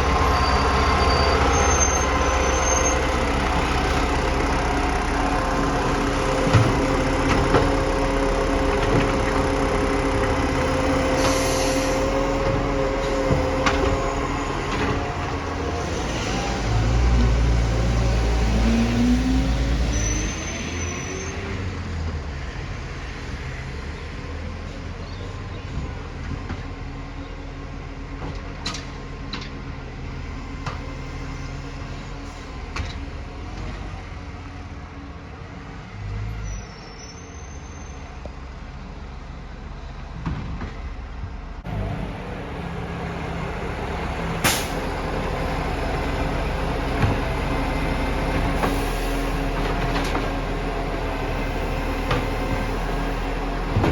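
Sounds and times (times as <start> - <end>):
garbage truck engine: 0.0 - 53.9.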